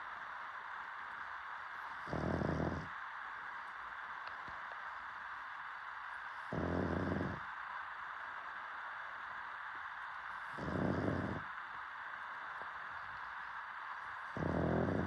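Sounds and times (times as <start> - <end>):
steady hiss: 0.0 - 15.0
dog snoring: 1.9 - 2.9, 6.4 - 7.5, 10.4 - 11.5, 14.1 - 15.0.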